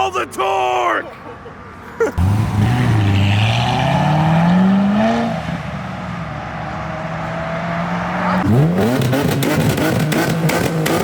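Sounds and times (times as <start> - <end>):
car engine revving: 2.2 - 5.9, 6.7 - 11.0.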